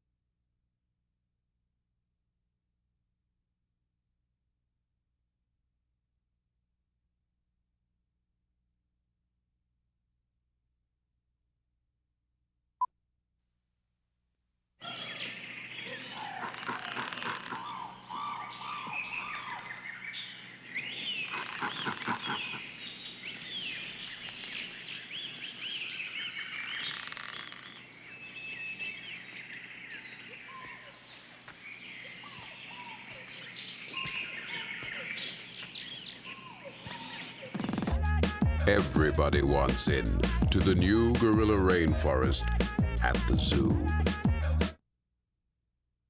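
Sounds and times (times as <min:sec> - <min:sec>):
frogs chirping: 0:14.8 - 0:38.1
bird calls: 0:14.8 - 0:43.7.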